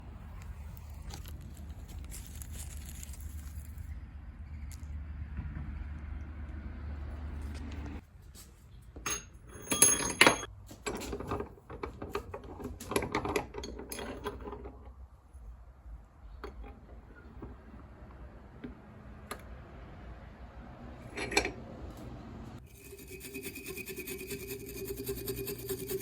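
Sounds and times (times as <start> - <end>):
small hard objects clinking: 0.8 - 3.9.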